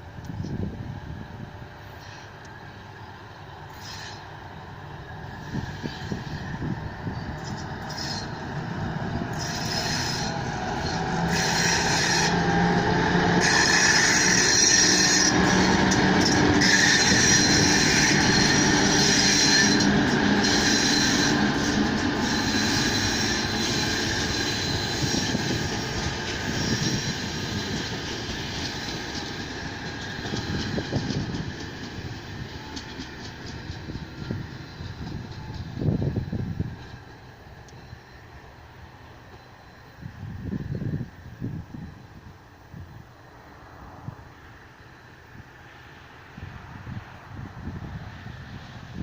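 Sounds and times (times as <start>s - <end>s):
diesel locomotive passing: 0.0s - 49.0s
train wheels on rails: 0.0s - 49.0s
high wheel squeal: 3.7s - 4.3s, 5.3s - 42.3s.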